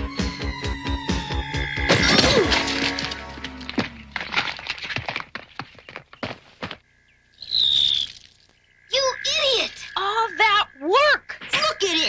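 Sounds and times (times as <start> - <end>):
music: 0.0 - 4.2
cartoon crash of nuts spilling: 1.9 - 4.6.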